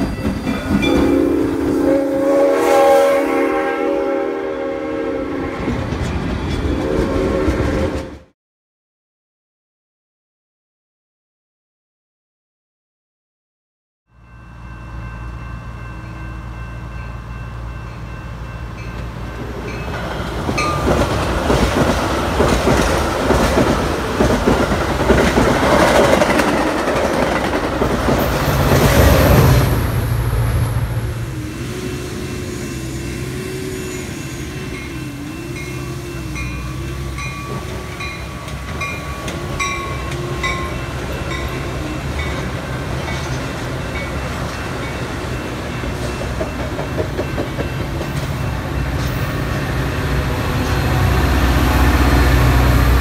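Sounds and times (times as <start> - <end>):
diesel train passing: 0.0 - 8.3, 14.1 - 53.0
wheels clattering over rail joints: 19.0 - 29.5.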